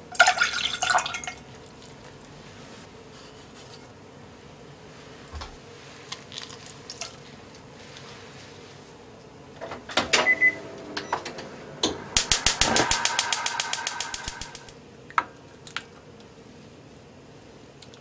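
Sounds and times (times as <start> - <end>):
rapid even ticking: 12.2 - 14.7.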